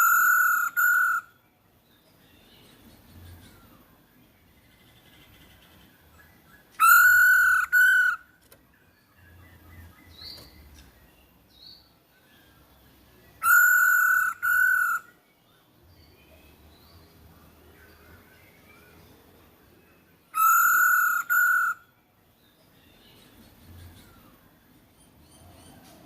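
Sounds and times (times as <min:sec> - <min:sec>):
bird giving loud calls: 0:00.0 - 0:01.3, 0:06.8 - 0:08.3, 0:13.4 - 0:15.1, 0:20.3 - 0:21.9.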